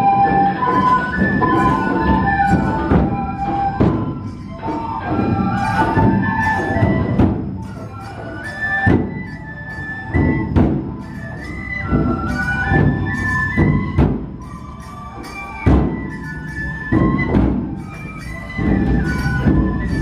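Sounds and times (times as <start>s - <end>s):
large drums striking: 0.0s - 8.0s, 8.9s - 11.2s, 11.8s - 14.6s
bamboo flute melody: 0.0s - 20.0s.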